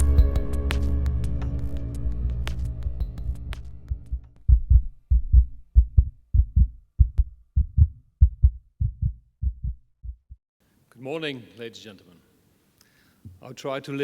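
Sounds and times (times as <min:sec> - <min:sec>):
heartbeat thumps: 0:03.9 - 0:10.4.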